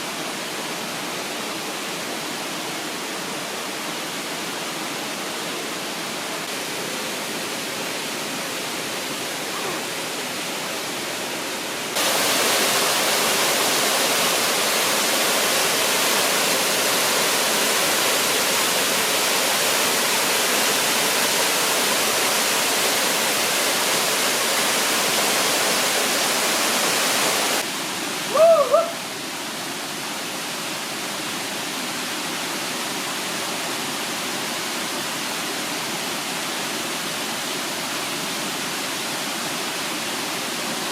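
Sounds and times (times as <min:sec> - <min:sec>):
stream water rushing: 0:00.0 - 0:40.9
short high calls: 0:28.3 - 0:29.1.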